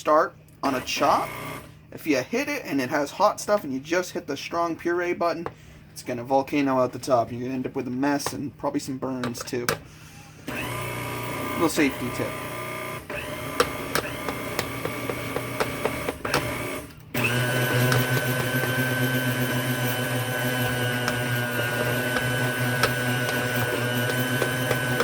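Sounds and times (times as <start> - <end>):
blender motor running: 0.7 - 1.7, 10.4 - 25.0.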